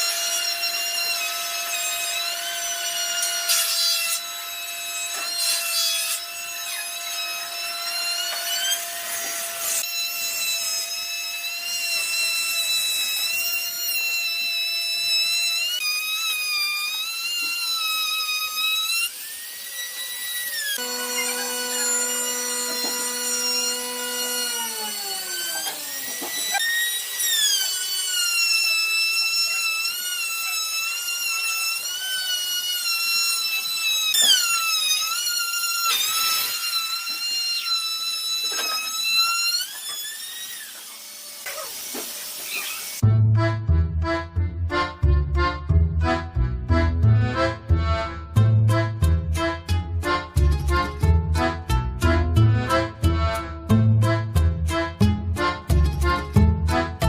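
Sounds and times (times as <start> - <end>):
power tool motor whining: 0.0 - 43.0.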